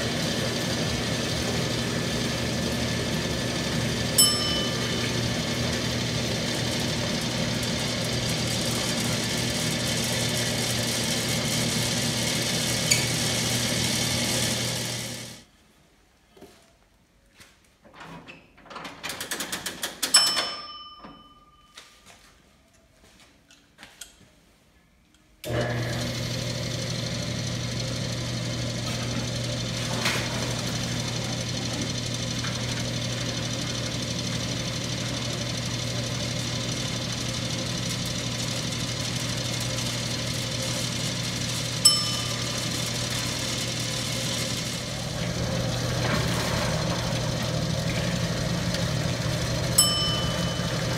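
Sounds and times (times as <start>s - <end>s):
electric pump motor humming: 0.0s - 15.4s, 25.5s - 50.9s
bell dinging: 4.2s - 5.2s, 20.2s - 21.8s, 41.8s - 43.0s, 49.8s - 50.9s.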